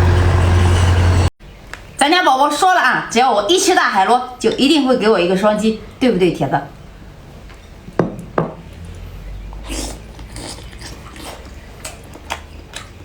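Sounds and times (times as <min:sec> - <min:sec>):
biting and chewing: 0:08.6 - 0:13.0
small crunches and smacks: 0:09.8 - 0:13.0.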